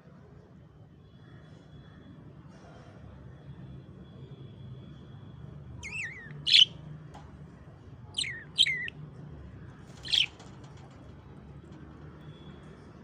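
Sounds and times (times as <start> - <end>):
lovebird chirping: 5.8 - 6.8, 8.2 - 8.9, 10.0 - 10.4.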